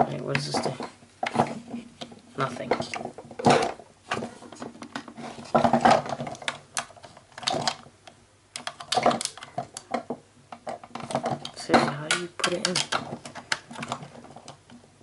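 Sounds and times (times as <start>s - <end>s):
plastic toy parts clicking: 5.8s - 14.7s.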